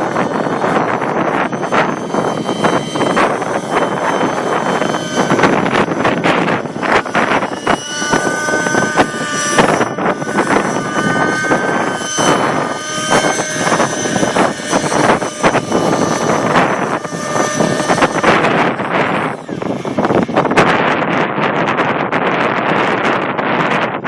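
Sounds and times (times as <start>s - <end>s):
rc helicopter engine whine: 0.0s - 24.0s
wind noise on microphone: 0.0s - 24.0s.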